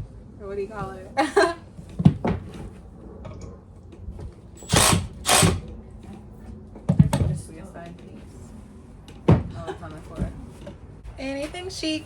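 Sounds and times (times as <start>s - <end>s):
power tool bursts: 4.6s - 5.7s.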